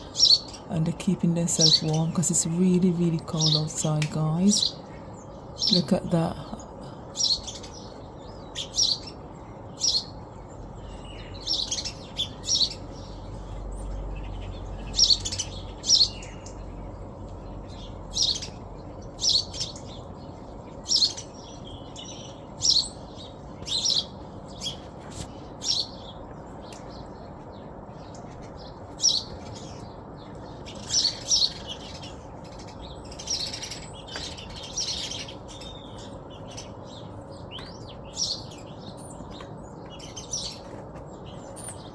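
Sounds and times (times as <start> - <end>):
low background hiss: 0.0 - 7.6
small birds chirping: 0.0 - 41.9.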